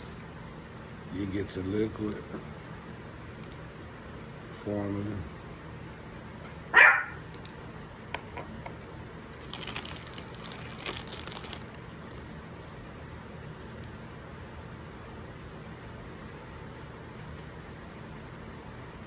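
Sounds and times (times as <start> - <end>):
dog barking: 6.7 - 7.3.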